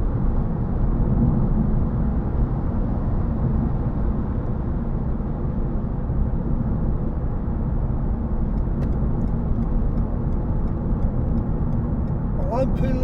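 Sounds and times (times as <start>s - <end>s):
car cabin road and tyre noise: 0.0s - 13.0s
faint light ticks: 8.4s - 12.2s.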